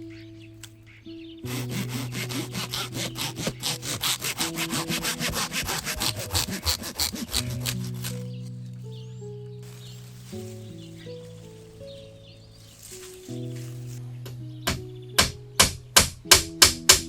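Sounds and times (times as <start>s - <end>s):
hand saw cutting wood: 1.5s - 8.3s.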